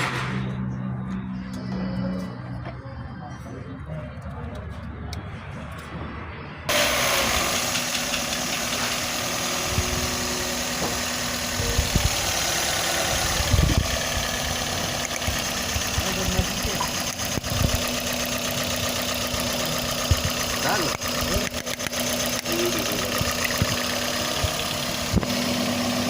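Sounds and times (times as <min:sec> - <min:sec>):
car engine idling: 0:06.7 - 0:26.0.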